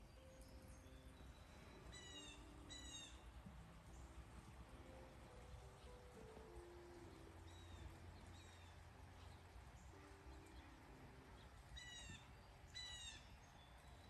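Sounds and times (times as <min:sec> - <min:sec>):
low steady hum: 0:00.0 - 0:14.0
bird calling: 0:01.7 - 0:03.2, 0:11.7 - 0:13.6.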